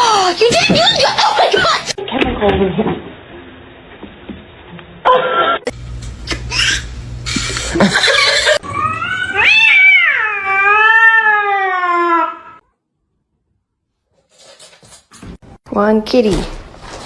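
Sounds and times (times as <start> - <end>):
knocks and rustling: 0.4 - 3.1
cat yowling: 8.5 - 12.6.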